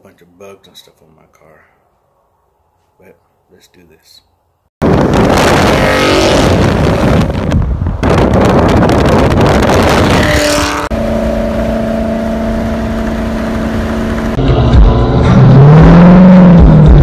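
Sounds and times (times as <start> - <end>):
car engine revving: 5.2 - 7.5, 8.7 - 17.0.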